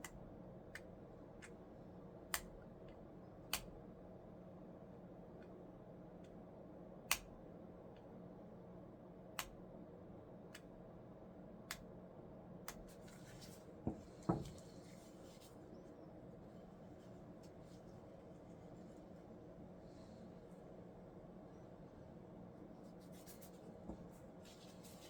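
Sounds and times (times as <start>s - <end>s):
steady low hum: 0.0s - 25.0s
soft rustle: 12.9s - 20.2s, 22.6s - 25.0s.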